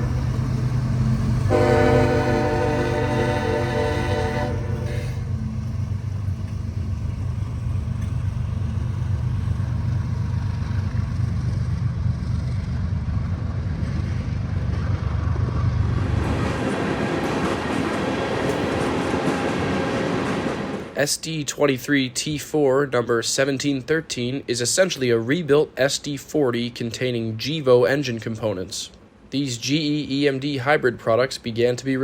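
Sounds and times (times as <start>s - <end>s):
freight cars rolling by: 0.0s - 21.0s
locomotive engine rumble: 0.0s - 21.0s
locomotive horn: 1.4s - 5.4s.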